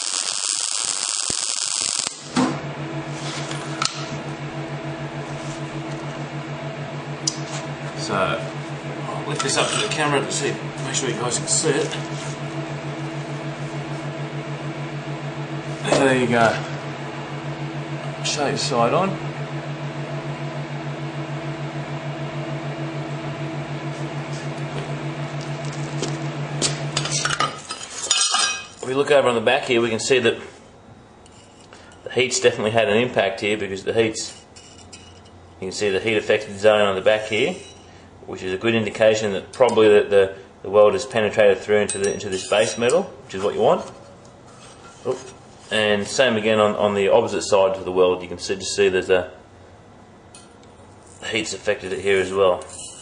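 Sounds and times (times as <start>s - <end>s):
welding arc hissing: 0.0s - 2.4s
welding machine humming: 0.0s - 30.1s, 31.0s - 38.3s.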